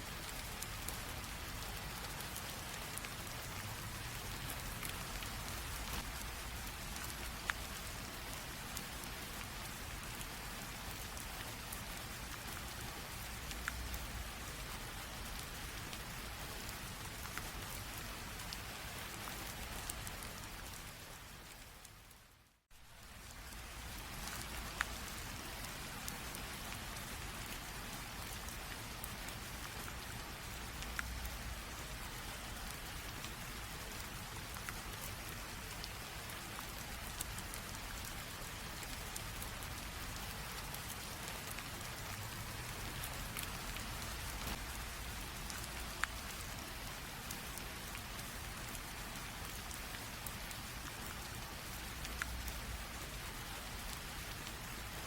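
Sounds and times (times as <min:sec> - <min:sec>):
light rain pattering: 0:00.0 - 0:55.0.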